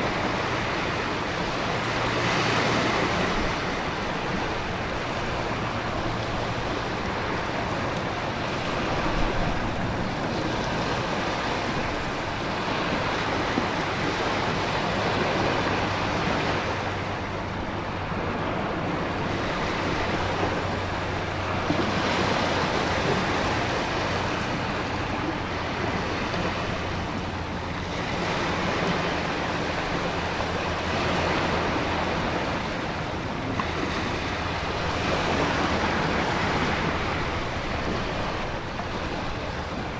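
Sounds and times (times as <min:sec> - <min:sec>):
ocean surf: 0:00.0 - 0:39.9.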